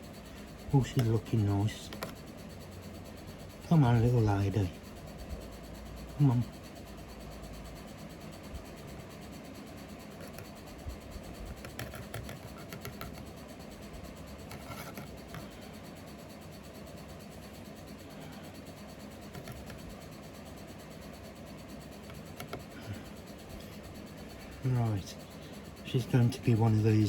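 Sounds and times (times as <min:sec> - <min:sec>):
low background hum: 0:00.0 - 0:27.0
faint scratching and rubbing: 0:00.3 - 0:02.3, 0:10.1 - 0:16.0, 0:18.2 - 0:20.2, 0:20.9 - 0:27.0.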